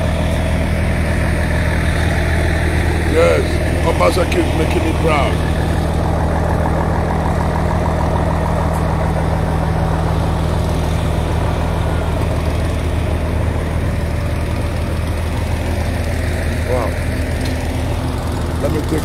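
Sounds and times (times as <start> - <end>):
large engine idling: 0.0 - 19.0.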